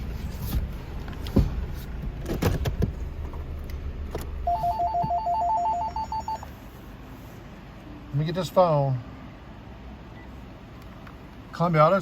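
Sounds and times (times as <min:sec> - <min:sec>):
phone ringtone beeps: 0:04.5 - 0:06.5.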